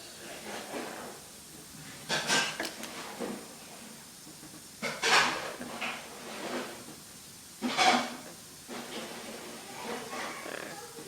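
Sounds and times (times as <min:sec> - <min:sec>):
parrot harsh calls: 0:09.8 - 0:11.0.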